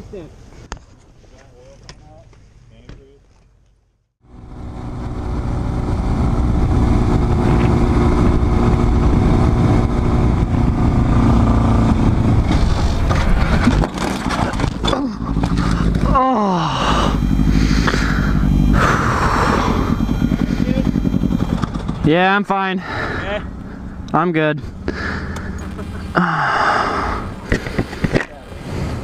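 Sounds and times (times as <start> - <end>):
motorcycle engine running: 4.2 - 28.1
wind rush: 4.5 - 13.9.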